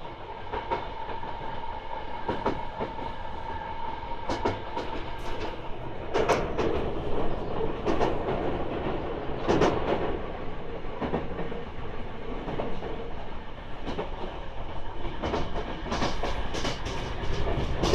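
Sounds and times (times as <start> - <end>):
train rumble: 0.0 - 17.9
wheels clacking over rail joints: 15.2 - 17.9.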